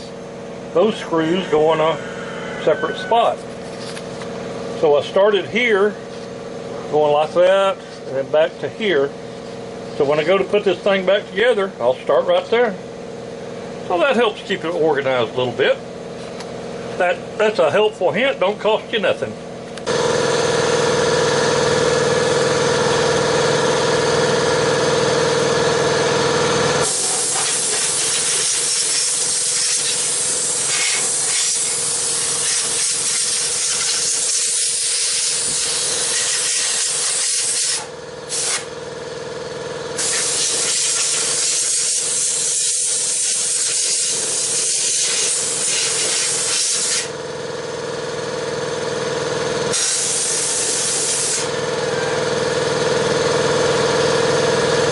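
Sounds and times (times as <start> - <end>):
vacuum cleaner motor whine: 0.8 - 4.0, 19.8 - 29.1, 49.6 - 54.9
air rushing through vacuum nozzle: 26.8 - 38.7, 40.0 - 47.1.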